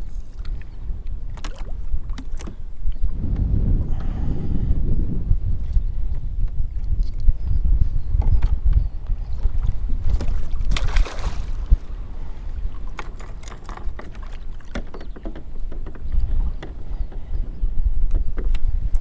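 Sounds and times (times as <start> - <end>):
wind buffeting microphone: 0.0 - 19.0
knocks and taps on kayak: 12.9 - 16.8.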